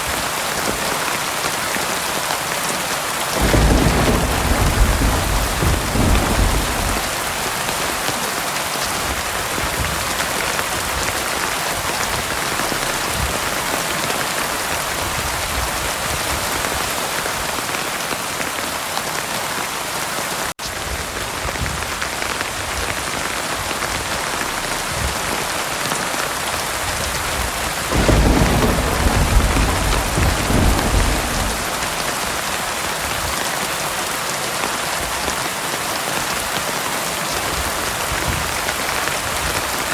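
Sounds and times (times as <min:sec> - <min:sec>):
heavy rain: 0:00.0 - 0:39.9
thunder rumbling: 0:03.4 - 0:16.9, 0:26.8 - 0:33.4.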